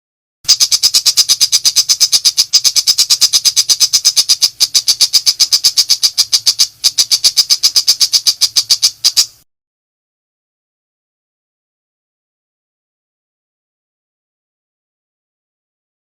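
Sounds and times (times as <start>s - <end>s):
bird rapid high-pitched call: 0.5s - 9.4s.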